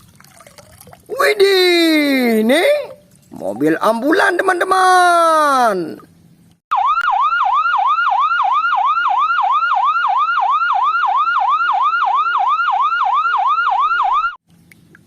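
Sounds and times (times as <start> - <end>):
ambulance siren yelping: 6.7 - 14.4.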